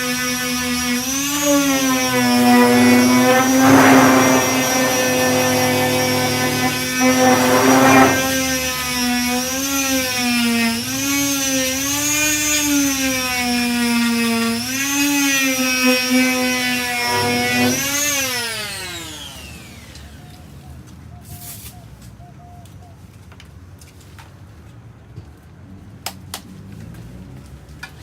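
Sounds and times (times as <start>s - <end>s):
electric sander motor whine: 0.0s - 20.4s
sanding disc rasping on filler: 0.7s - 9.9s, 14.7s - 18.3s.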